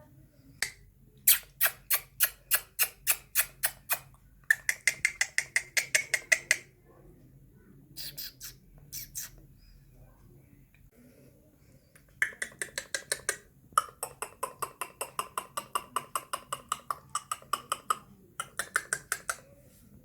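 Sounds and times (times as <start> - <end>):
parakeet squawking: 8.0 - 9.4.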